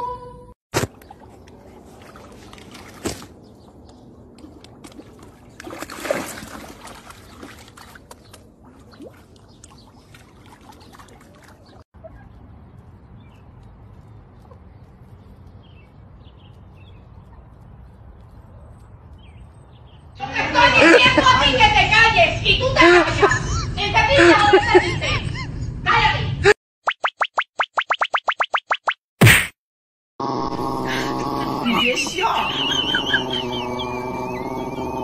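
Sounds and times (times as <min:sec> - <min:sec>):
water lapping against rocks: 0:00.9 - 0:11.9
water splashing rush: 0:04.4 - 0:11.8.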